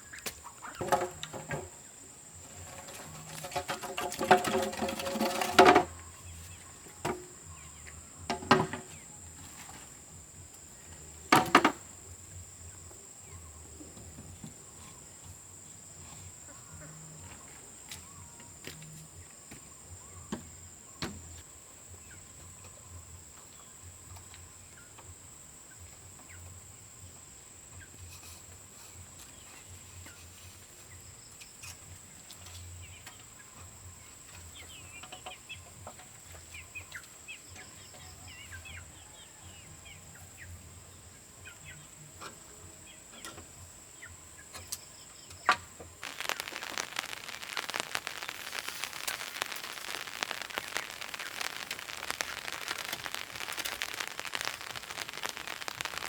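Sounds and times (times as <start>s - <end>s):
chickens clucking: 0.0s - 56.0s
loud rushing hiss: 46.0s - 56.0s.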